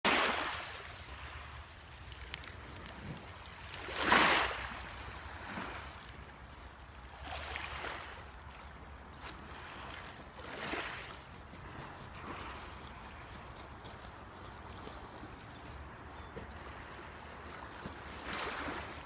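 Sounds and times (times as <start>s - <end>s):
sea waves washing on shore: 0.1s - 12.7s.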